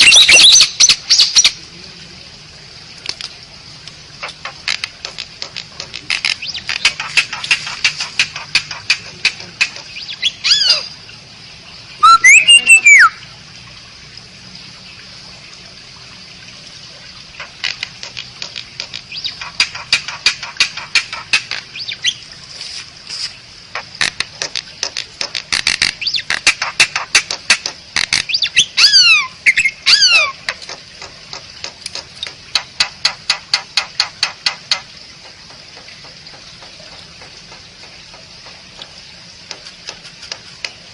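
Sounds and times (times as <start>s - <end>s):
starling whistles: 12.0s - 13.2s.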